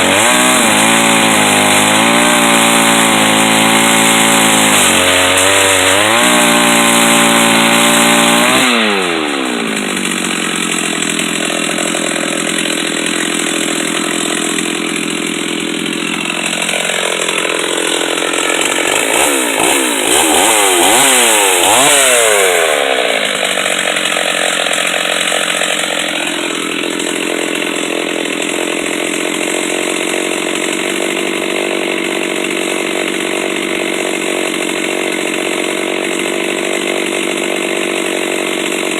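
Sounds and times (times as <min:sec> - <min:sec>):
chainsaw running at high revs: 0:00.0 - 0:38.9.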